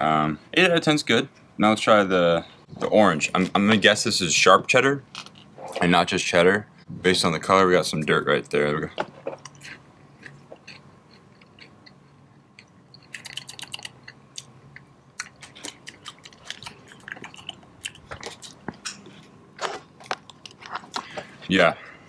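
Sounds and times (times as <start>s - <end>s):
person crunching cracker: 9.5s - 19.0s, 19.6s - 21.2s.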